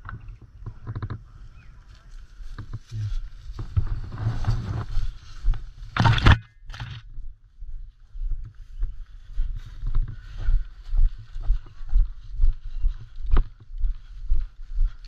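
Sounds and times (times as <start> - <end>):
footsteps in undergrowth: 0.0 - 15.0
brush rustling: 0.7 - 7.0.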